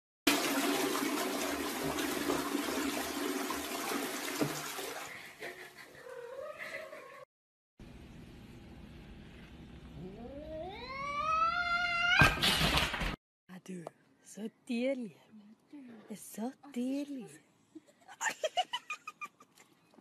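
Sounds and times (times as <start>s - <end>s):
toilet flushing: 0.3s - 5.8s
cat meowing: 10.0s - 12.3s.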